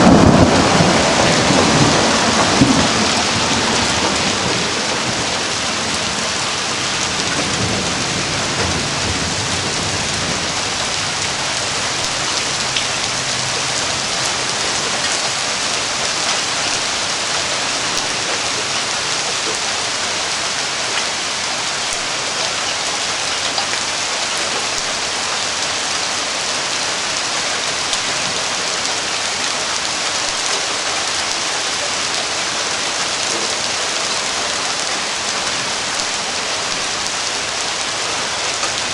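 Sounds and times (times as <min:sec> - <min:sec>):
low rumble of thunder: 0:00.0 - 0:14.5
heavy rain falling: 0:00.0 - 0:38.9.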